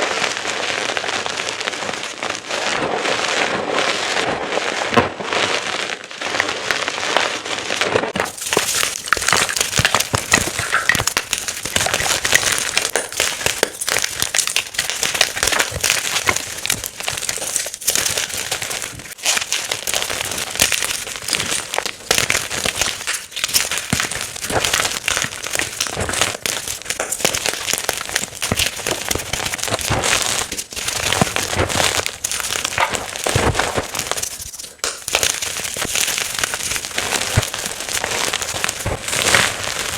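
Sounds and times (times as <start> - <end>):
chalk being crushed: 8.1 - 39.9.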